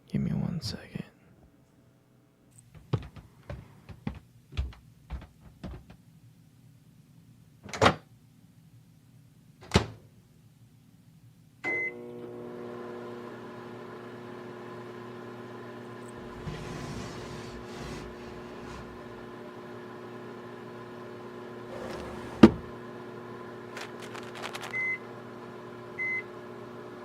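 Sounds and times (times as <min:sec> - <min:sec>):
microwave oven beep: 0:11.6 - 0:12.4, 0:24.7 - 0:27.0
microwave oven humming: 0:11.6 - 0:27.0.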